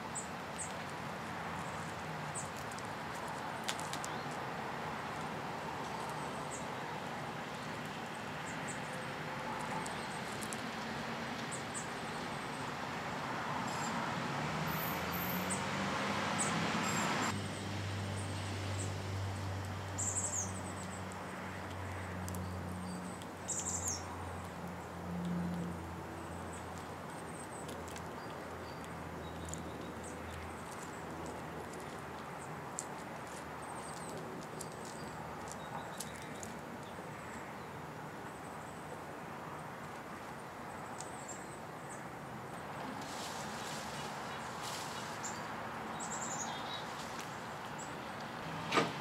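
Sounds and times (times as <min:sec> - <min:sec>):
small birds chirping: 0:19.9 - 0:24.9, 0:26.2 - 0:39.0, 0:40.7 - 0:48.4.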